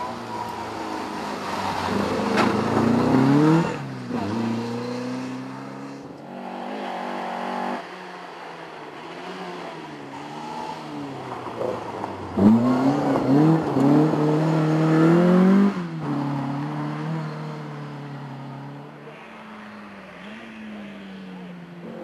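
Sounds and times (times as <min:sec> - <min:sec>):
rally car engine revving hard: 0:02.0 - 0:05.6, 0:12.4 - 0:17.2.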